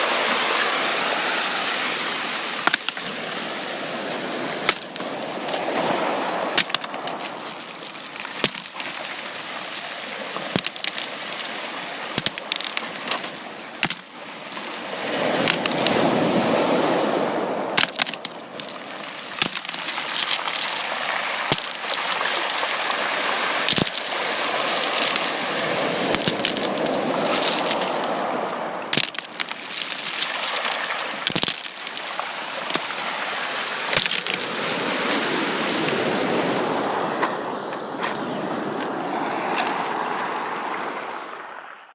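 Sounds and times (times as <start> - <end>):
sea waves washing onto beach: 0.0 - 41.7
sharp crackling clicks: 6.6 - 11.6, 12.2 - 14.7, 15.4 - 16.0, 17.8 - 20.9, 21.5 - 23.1, 23.7 - 25.4, 26.1 - 28.2, 28.9 - 32.9.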